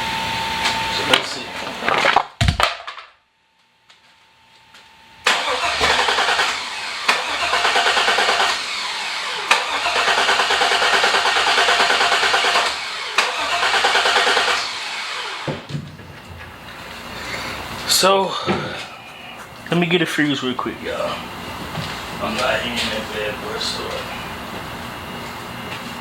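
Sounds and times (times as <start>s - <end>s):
engine starter cranking: 5.2s - 16.2s.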